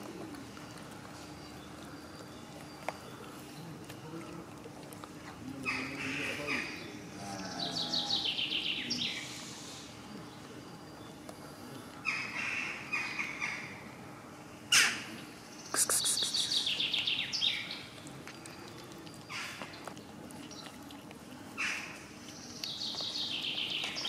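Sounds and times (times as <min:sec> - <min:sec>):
birds chirping: 0:15.4 - 0:20.8.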